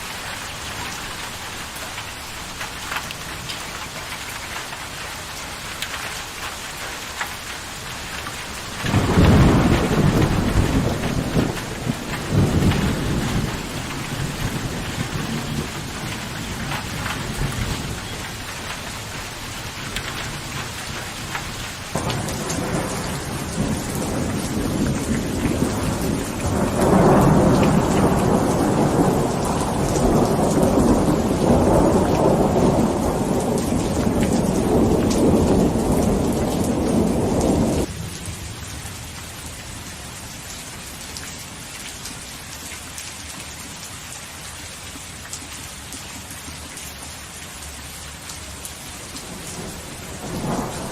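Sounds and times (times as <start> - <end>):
steady rain falling: 0.0 - 50.9
low roll of thunder: 8.8 - 18.0, 21.9 - 38.4, 49.2 - 50.9.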